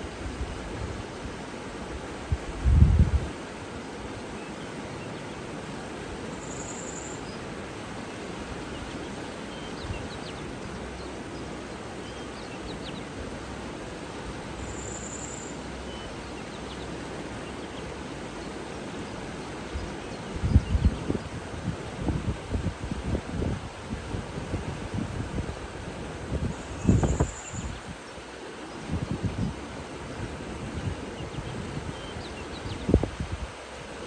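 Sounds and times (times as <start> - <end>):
rushing water: 0.0 - 34.0
wind: 0.0 - 34.0
faint bird chirps: 6.3 - 7.4, 14.6 - 16.8, 26.5 - 27.8.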